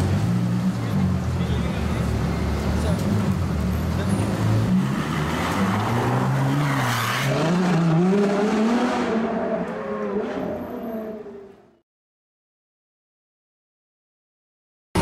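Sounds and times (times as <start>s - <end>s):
car engine revving: 2.2s - 11.3s.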